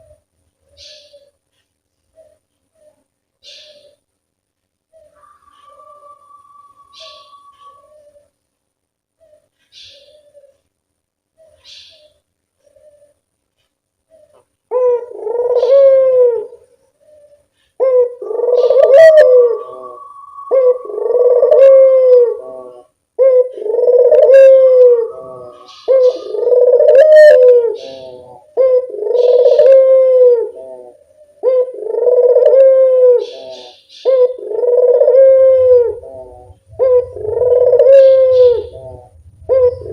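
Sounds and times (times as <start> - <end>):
faint high chirps: 4.8 - 8.4, 18.4 - 22.0
doves cooing: 4.9 - 8.4, 9.2 - 10.6, 11.4 - 13.2, 14.1 - 39.9
loud drawn-out bird call: 5.0 - 8.3, 18.0 - 39.9.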